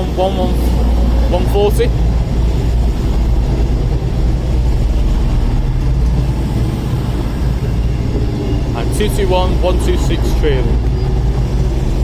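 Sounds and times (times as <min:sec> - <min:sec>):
diesel train engines droning: 0:00.0 - 0:12.0.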